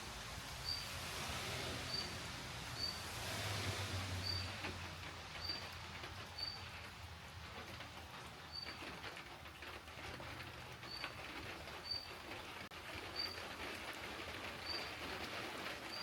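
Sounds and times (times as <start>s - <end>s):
small bird chirping: 1.9s - 2.2s, 2.8s - 3.0s.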